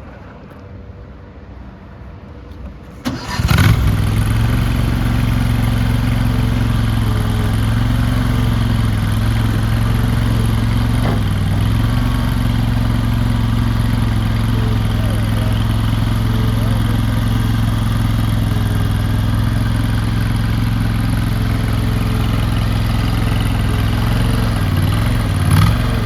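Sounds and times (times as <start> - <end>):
gasoline engine running: 2.5 - 26.0
engine starter cranking: 2.8 - 26.0.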